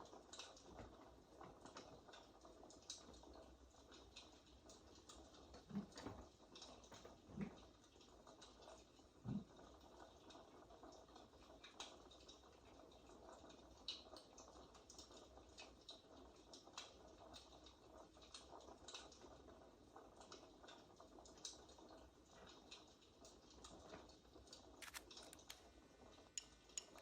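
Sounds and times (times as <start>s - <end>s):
fireplace crackling: 21.4s - 27.0s.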